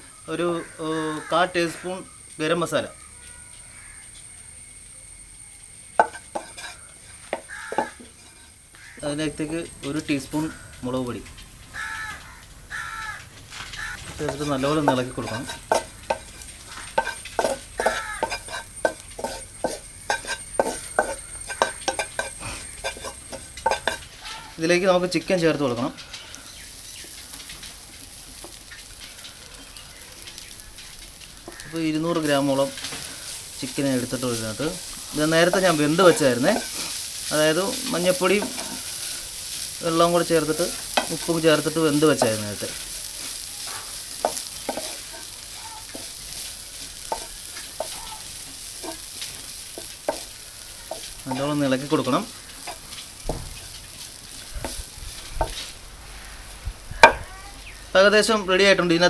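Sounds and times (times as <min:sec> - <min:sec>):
low sizzle: 0:00.0 - 0:59.0
spoon scraping frying pan: 0:06.0 - 0:10.6, 0:13.8 - 0:24.6, 0:26.5 - 0:56.3.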